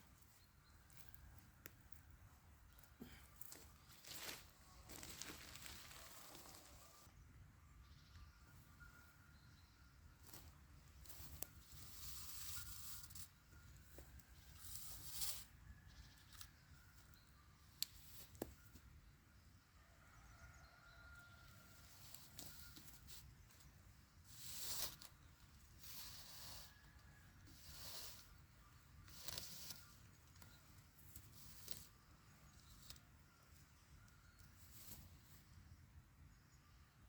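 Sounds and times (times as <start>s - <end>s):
faint rustling and crackling: 2.8s - 7.1s, 21.6s - 35.6s.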